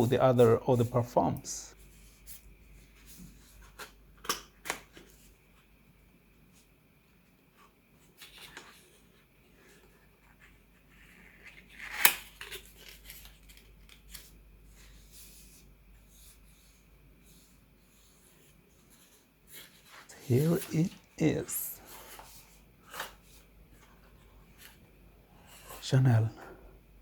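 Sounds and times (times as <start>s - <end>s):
cardboard rustling and scraping: 7.6s - 24.8s.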